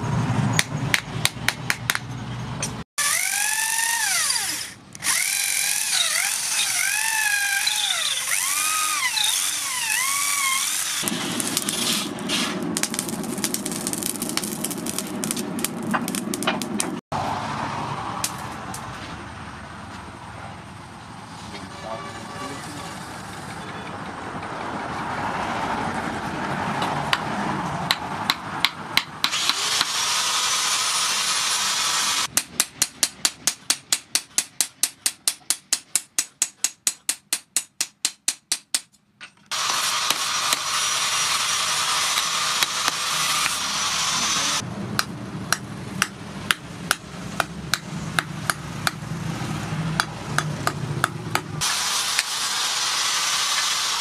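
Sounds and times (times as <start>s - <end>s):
hammer striking steel on anvil: 50.0s - 52.3s
hot blade hissing steam: 51.6s - 54.0s.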